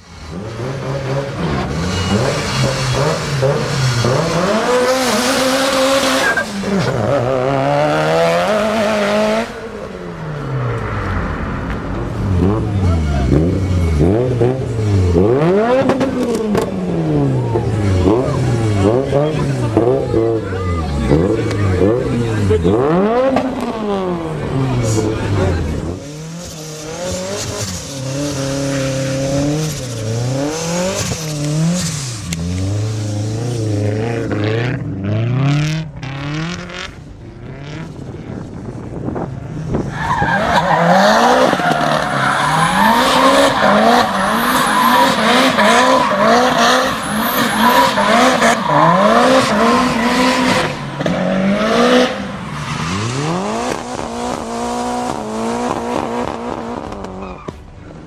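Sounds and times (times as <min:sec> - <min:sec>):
car engine revving hard: 0:00.0 - 0:09.8, 0:12.1 - 0:38.3, 0:39.5 - 0:57.2
tyre squeal: 0:01.1 - 0:07.1, 0:39.9 - 0:49.3.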